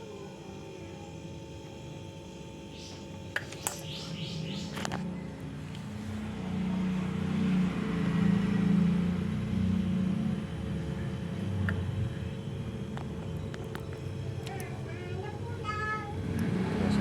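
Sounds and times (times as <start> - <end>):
low engine rumble: 3.4 - 17.0.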